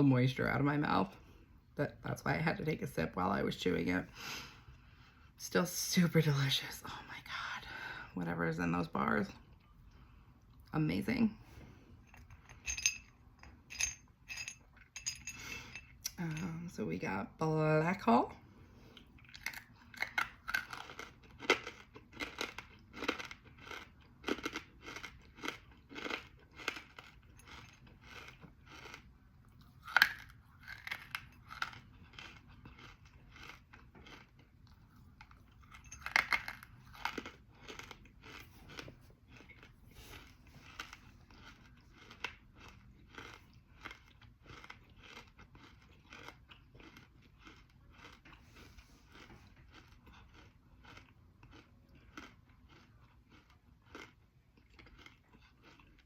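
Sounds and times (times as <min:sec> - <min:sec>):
crunching and chewing: 0:18.4 - 0:56.0.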